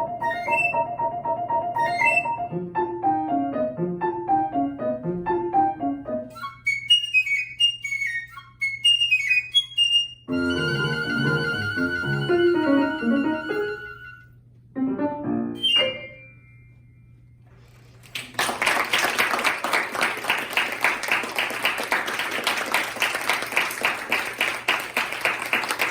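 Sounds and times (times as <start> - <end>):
flute: 0.0 - 2.6, 6.3 - 14.4, 15.6 - 16.4
piano chords: 0.0 - 6.8, 10.3 - 17.3
audience applause: 18.0 - 25.9.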